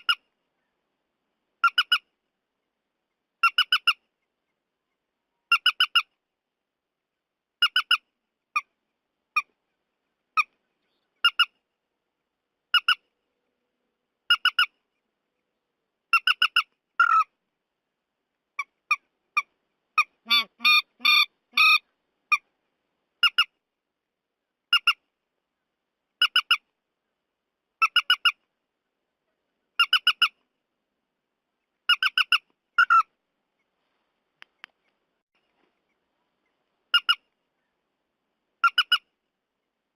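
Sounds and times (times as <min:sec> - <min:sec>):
bird calls from lure recording: 0:00.0 - 0:00.8, 0:01.6 - 0:02.2, 0:03.4 - 0:06.2, 0:07.6 - 0:11.7, 0:12.7 - 0:13.1, 0:14.2 - 0:15.1, 0:16.1 - 0:17.4, 0:18.5 - 0:22.6, 0:23.2 - 0:23.6, 0:24.6 - 0:25.1, 0:26.1 - 0:26.7, 0:27.8 - 0:28.5, 0:29.7 - 0:30.5, 0:31.6 - 0:33.8, 0:34.4 - 0:37.8, 0:38.6 - 0:39.2.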